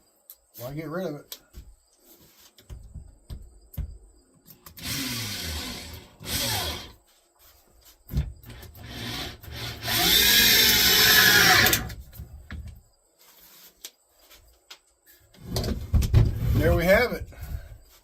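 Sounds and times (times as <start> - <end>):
drill driving screws into wood: 4.7 - 7.0, 8.5 - 12.0.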